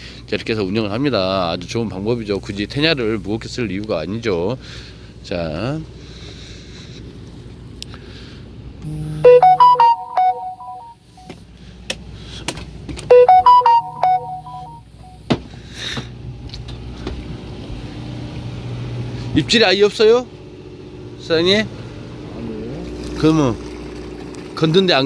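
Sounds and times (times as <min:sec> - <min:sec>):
phone ringtone melody: 0:08.9 - 0:11.3, 0:13.1 - 0:15.2.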